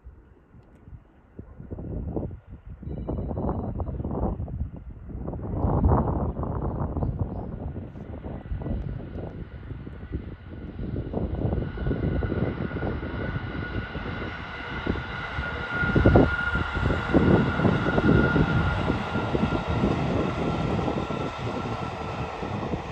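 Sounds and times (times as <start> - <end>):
wheels rumbling on rails: 7.6 - 22.9
electric train passing: 10.0 - 22.9.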